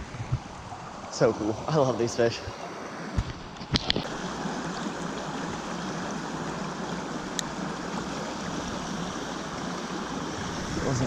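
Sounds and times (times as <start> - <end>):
stream water flowing: 0.0 - 11.0.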